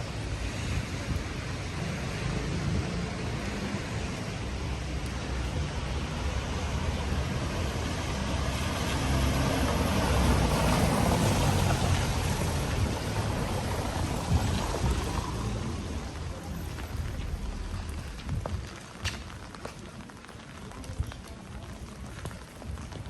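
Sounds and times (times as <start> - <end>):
steady rain hiss: 0.0 - 23.0
vehicle tyres swishing on wet road: 0.0 - 23.0.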